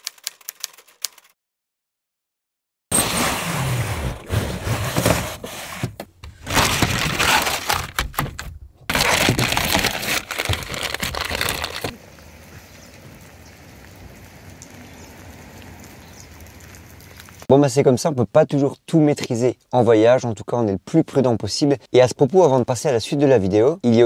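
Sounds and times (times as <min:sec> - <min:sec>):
rain hiss outside: 0:12.0 - 0:17.5.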